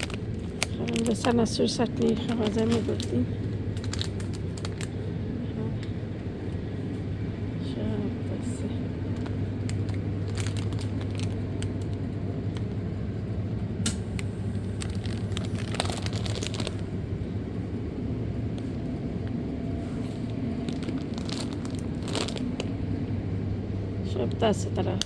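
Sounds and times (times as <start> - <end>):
plastic packaging crinkling: 0.0 - 5.0, 9.1 - 12.1, 14.5 - 17.0, 20.2 - 22.8
low shop hum: 0.0 - 25.0.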